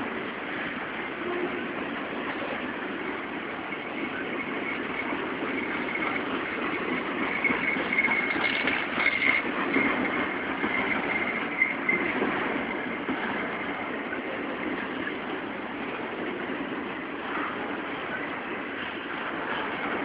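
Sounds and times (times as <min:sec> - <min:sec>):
train wheels rumbling on rails: 0:00.0 - 0:20.0
thin high wheel squeal: 0:01.0 - 0:15.4.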